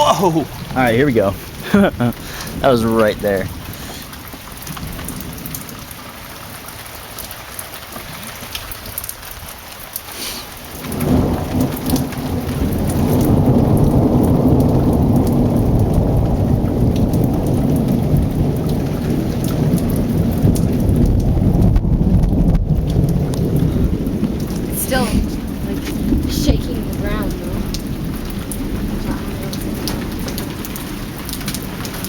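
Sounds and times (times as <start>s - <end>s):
heavy rain pattering: 0.0s - 32.0s
deep thunder rumble: 10.8s - 32.0s.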